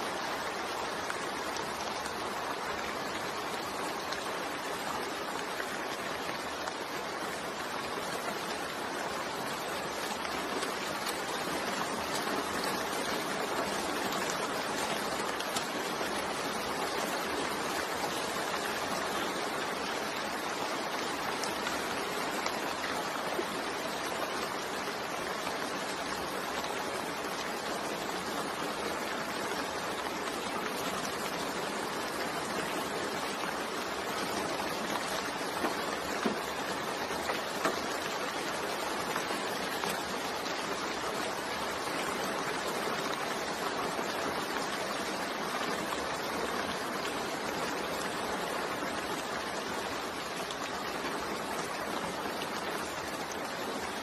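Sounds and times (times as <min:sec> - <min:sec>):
steady rain falling: 0:00.0 - 0:54.0
rain drop ticks: 0:33.3 - 0:40.6.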